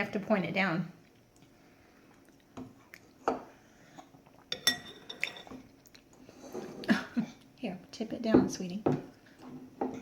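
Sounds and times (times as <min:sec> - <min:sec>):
spoon clinking against bowl: 0:04.5 - 0:05.6.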